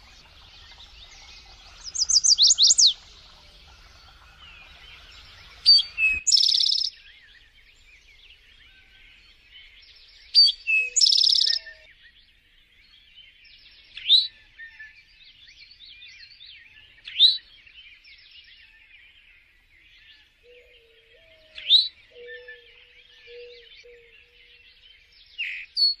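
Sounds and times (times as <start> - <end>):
songbirds chirping chorus: 0.0 - 26.0
sharp rising bird whistles: 1.9 - 3.0, 5.6 - 7.0, 10.4 - 11.8
bird trill with ringing note: 3.6 - 6.9.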